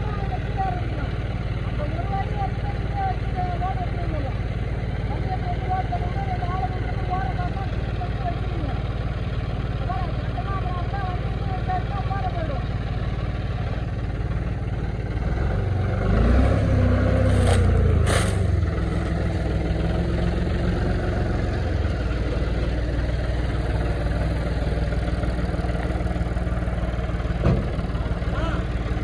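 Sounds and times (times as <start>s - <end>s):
harvester engine running: 0.0s - 29.0s.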